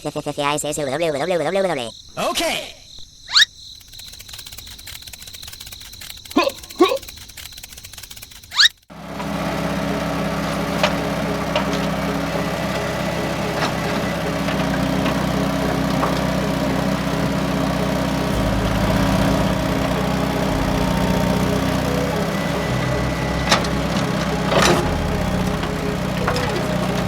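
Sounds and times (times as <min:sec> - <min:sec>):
light clicks: 0:03.7 - 0:08.7
motor idling hum: 0:08.9 - 0:27.0.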